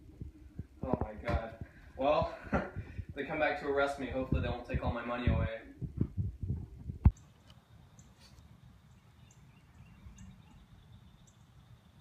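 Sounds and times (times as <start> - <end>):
wind rumble on microphone: 0.0 - 7.2
low thumps: 4.1 - 7.2.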